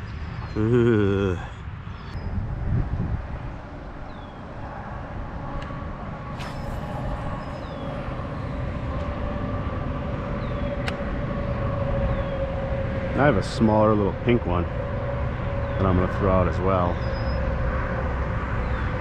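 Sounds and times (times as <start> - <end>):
road traffic rumble: 0.0 - 19.0
vehicle hum: 0.0 - 19.0
faint high chirps: 6.4 - 8.6.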